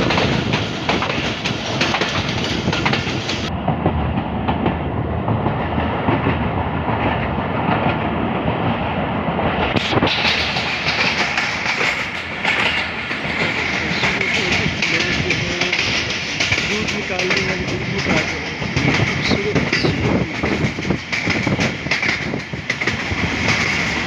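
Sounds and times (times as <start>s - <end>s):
train carriage rumbling: 0.0s - 24.0s
wheels clattering over rails: 9.5s - 24.0s.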